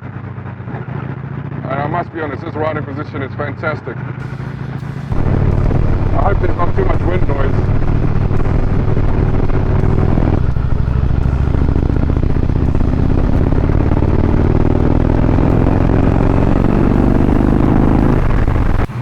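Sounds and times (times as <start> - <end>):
motorcycle engine accelerating: 0.0 - 19.0
wind rush: 5.1 - 19.0.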